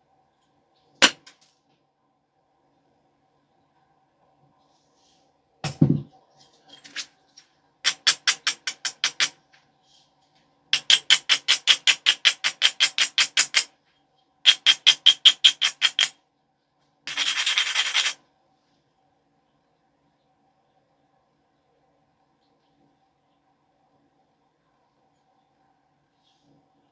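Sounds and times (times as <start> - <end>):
stone rubbing on stone edge: 7.9 - 9.3, 14.5 - 16.1, 17.1 - 18.2.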